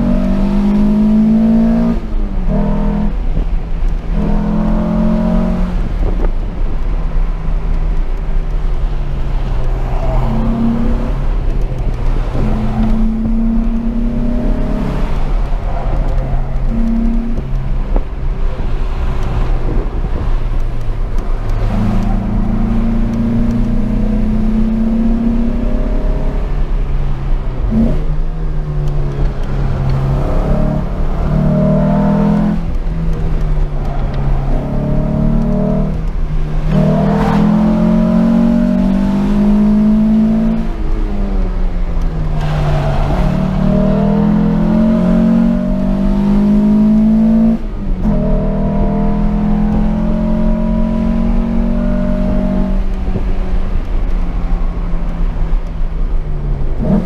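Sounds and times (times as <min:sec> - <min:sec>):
car engine pulling hard: 0:00.0 - 0:57.0.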